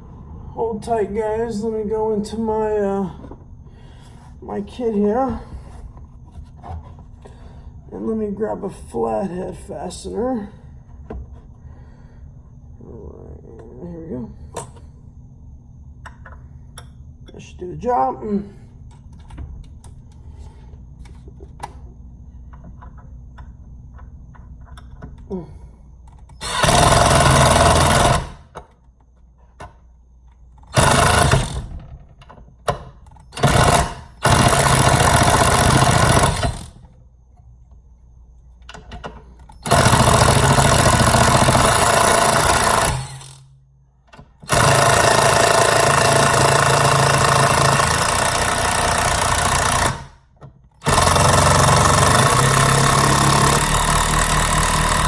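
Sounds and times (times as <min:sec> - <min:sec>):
impact driver hammering: 0:26.4 - 0:28.6, 0:30.7 - 0:31.7, 0:33.4 - 0:36.8, 0:39.6 - 0:43.4, 0:44.4 - 0:50.2, 0:50.8 - 0:55.0.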